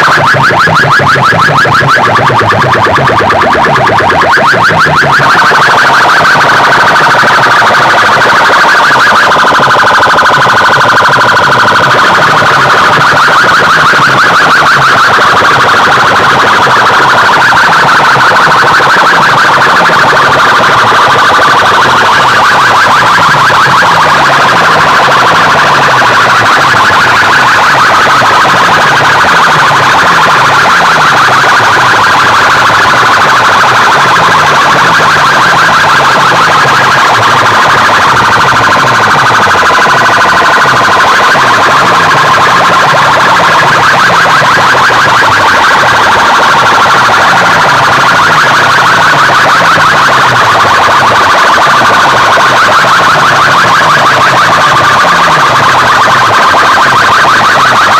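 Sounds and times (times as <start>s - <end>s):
distorted siren-like warbling effect: 0.0s - 57.9s.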